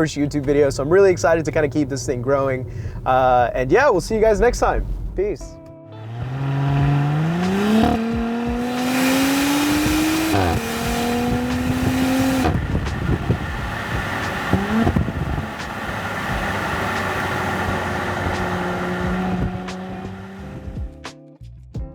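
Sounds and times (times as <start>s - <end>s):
car exhaust accelerating: 5.9s - 20.9s.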